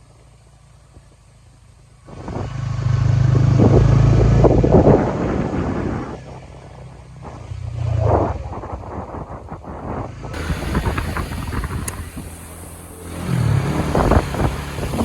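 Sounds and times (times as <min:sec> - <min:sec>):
motorbike engine running: 0:10.3 - 0:15.0.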